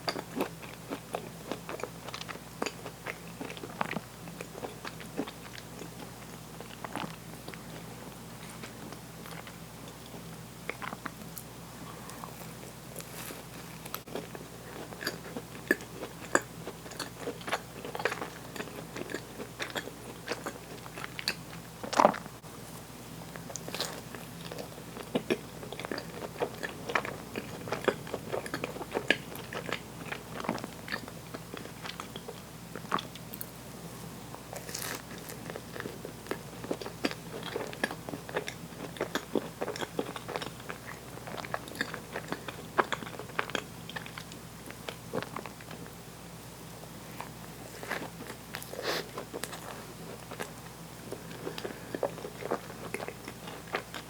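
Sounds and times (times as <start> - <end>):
crisp crunches of biting a cookie: 34.5 - 44.2.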